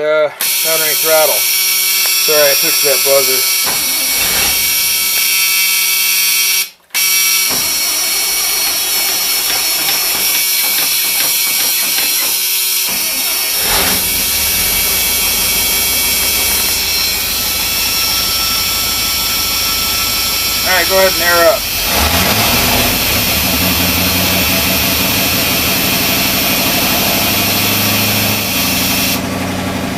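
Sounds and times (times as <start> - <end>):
warning buzzer: 0.4 - 7.8, 13.4 - 29.2
engine cranking on starter: 3.6 - 5.2, 6.9 - 29.9
engine running: 12.8 - 29.9.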